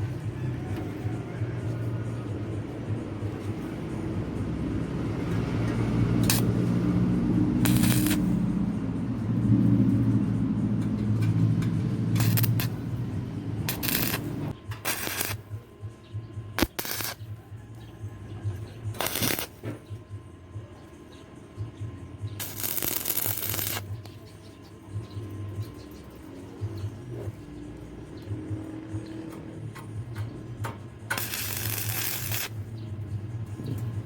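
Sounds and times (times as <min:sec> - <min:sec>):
metal scraping and rattling: 0:05.7 - 0:06.5, 0:10.6 - 0:15.4
electric motor humming: 0:06.2 - 0:08.7, 0:13.6 - 0:15.4.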